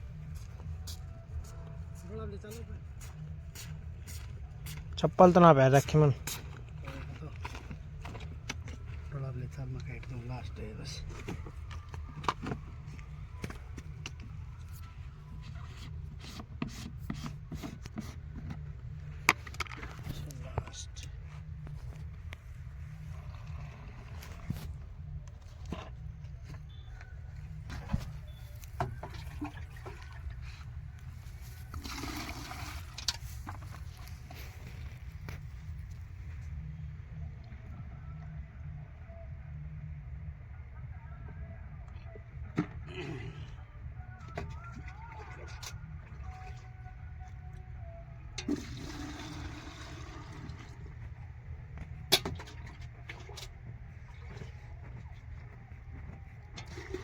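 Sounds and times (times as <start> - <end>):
tractor engine rumbling: 4.5 - 37.8.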